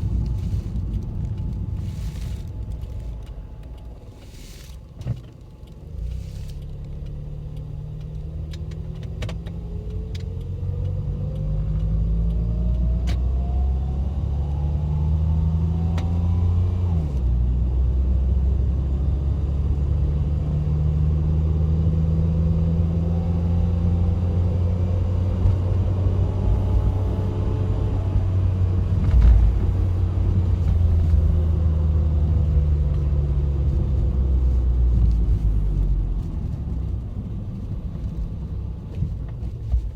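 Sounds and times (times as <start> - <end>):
car engine accelerating: 0.0 - 39.9
low road rumble: 0.0 - 39.9.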